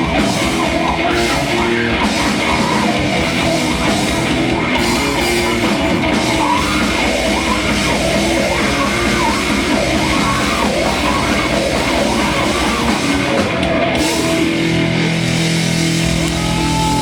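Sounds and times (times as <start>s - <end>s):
heavy rock band playing: 0.0s - 17.0s
shouted vocals: 16.1s - 17.0s.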